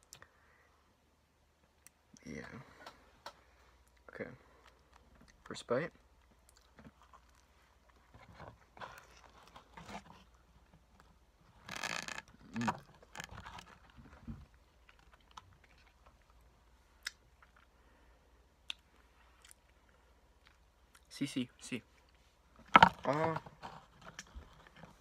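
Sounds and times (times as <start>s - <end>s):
person chewing: 6.1s - 8.1s, 14.8s - 17.7s, 18.6s - 21.1s.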